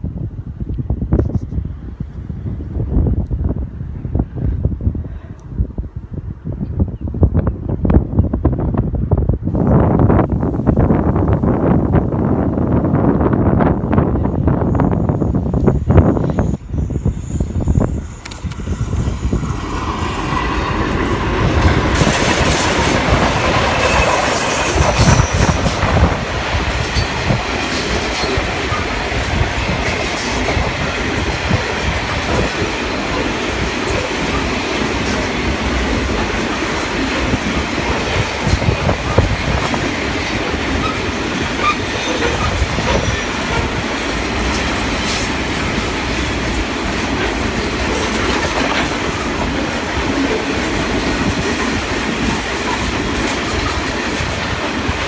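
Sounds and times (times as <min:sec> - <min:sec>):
freight train rumbling past: 0:07.1 - 0:55.0
wheels clicking over rail joints: 0:18.1 - 0:55.0.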